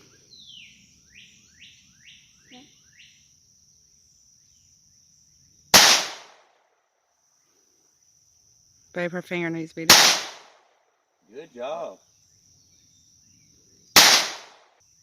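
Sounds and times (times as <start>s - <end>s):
bird chirping: 0.0s - 4.9s, 11.3s - 14.0s
high insect trill: 0.0s - 15.0s
pistol shot: 5.7s - 6.4s, 9.9s - 10.6s, 14.0s - 14.7s.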